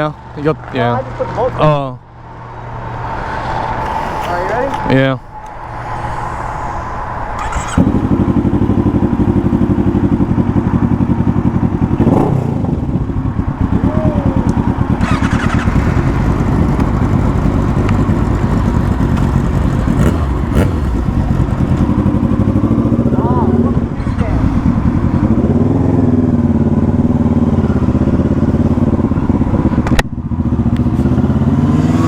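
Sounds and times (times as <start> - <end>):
motorcycle engine starting and idling: 7.3 - 32.0.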